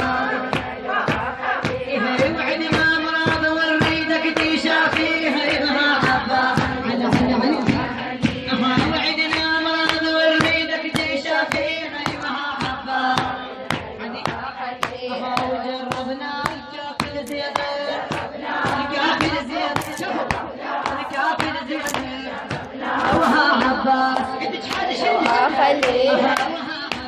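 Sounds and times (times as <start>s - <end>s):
women chanting a lament: 0.0s - 27.0s
hand strikes beat: 6.0s - 27.0s.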